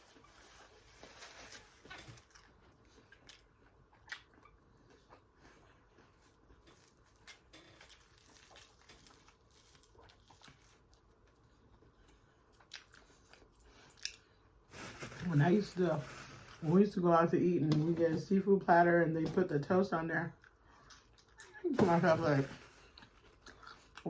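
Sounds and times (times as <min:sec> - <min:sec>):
chewing and mouth smacking: 0:02.1 - 0:14.4, 0:20.4 - 0:21.6, 0:22.9 - 0:24.0.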